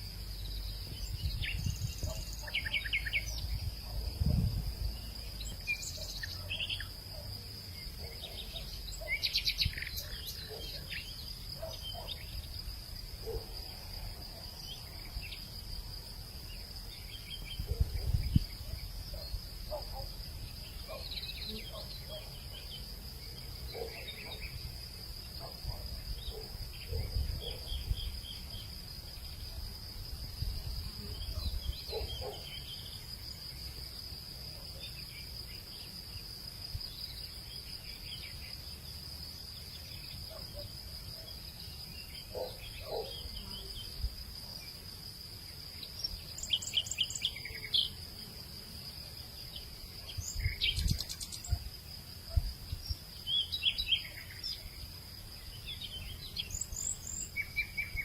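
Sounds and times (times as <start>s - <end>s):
crickets droning: 0.0s - 58.0s
bird chirps: 0.6s - 3.6s.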